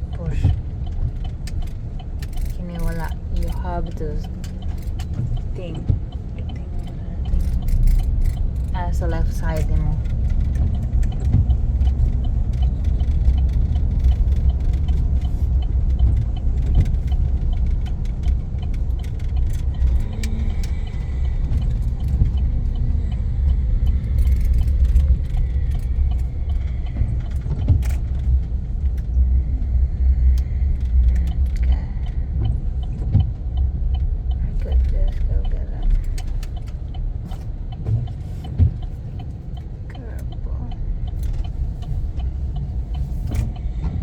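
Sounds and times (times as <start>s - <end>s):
pickup truck engine rumble: 0.0s - 44.0s
rattling clicks: 0.5s - 29.2s.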